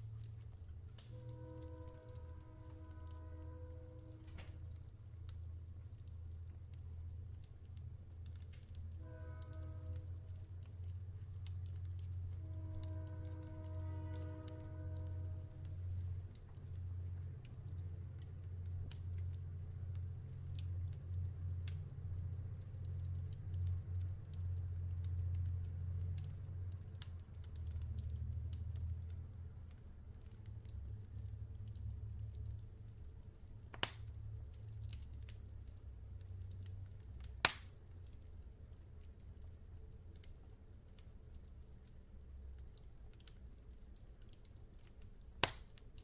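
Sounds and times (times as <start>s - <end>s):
log fire crackling: 0.0s - 46.0s
sharp fire pops: 0.2s - 1.6s, 33.6s - 35.4s, 36.6s - 38.3s, 44.2s - 46.0s.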